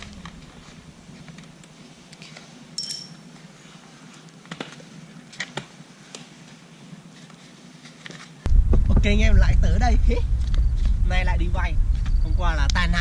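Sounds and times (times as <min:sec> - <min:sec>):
metallic clink: 0:02.8 - 0:03.2.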